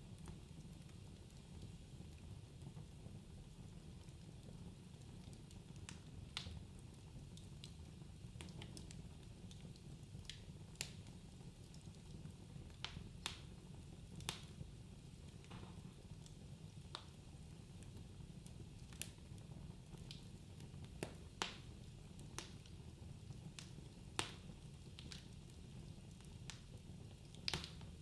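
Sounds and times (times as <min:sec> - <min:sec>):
logs crackling and popping: 0:12.7 - 0:13.6, 0:14.2 - 0:14.6, 0:18.8 - 0:19.2, 0:20.8 - 0:22.9, 0:23.5 - 0:28.0.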